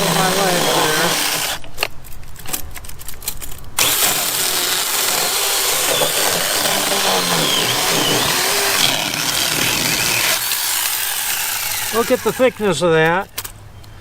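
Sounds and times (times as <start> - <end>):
mini chainsaw cutting log: 0.0 - 1.7, 3.8 - 13.2.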